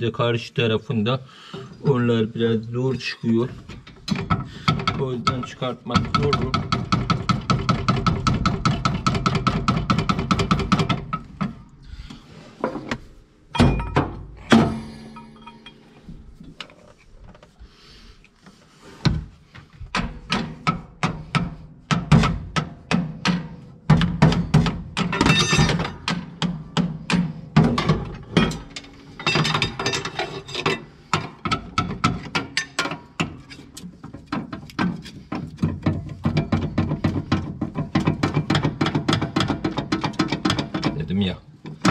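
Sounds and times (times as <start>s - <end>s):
tools knocking on metal: 4.1s - 11.6s, 13.6s - 15.8s, 20.0s - 33.5s, 34.1s - 41.0s.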